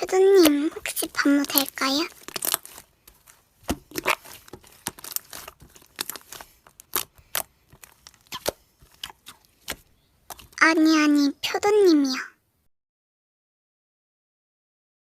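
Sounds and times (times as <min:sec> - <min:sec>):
slime squeezed by hand: 0:00.4 - 0:10.6.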